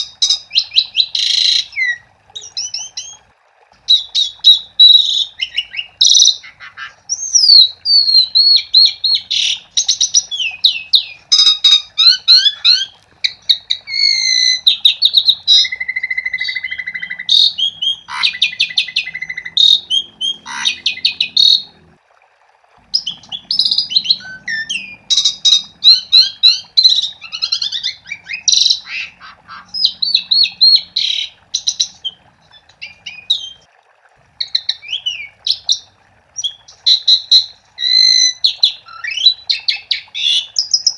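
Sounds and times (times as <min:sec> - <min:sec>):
starling singing: 0:00.0 - 0:03.2, 0:03.9 - 0:21.8, 0:22.8 - 0:33.6
faint steady hum: 0:00.0 - 0:40.9.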